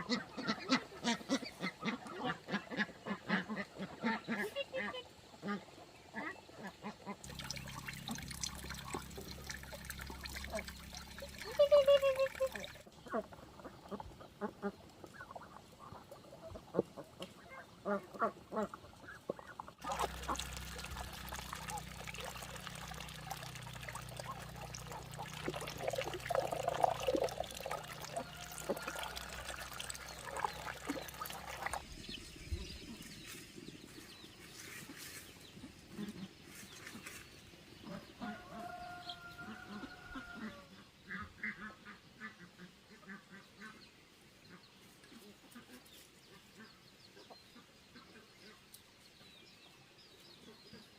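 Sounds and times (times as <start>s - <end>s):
ducks quacking: 0.0s - 7.3s, 10.4s - 31.8s, 40.2s - 43.8s.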